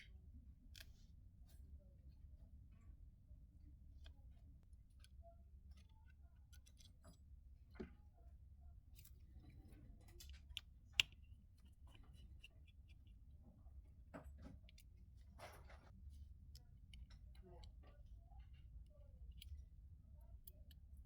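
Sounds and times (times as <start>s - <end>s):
low steady hum: 0.0s - 21.0s
small tools clicking on watch: 19.0s - 21.0s.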